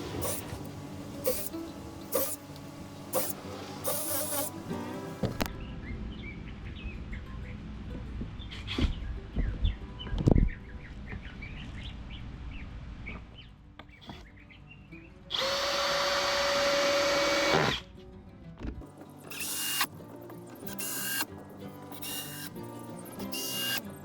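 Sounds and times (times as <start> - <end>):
cordless drill running: 0.0 - 2.4, 3.1 - 4.6, 15.3 - 17.8, 19.3 - 19.9, 20.7 - 21.3, 22.0 - 22.5, 23.3 - 23.8.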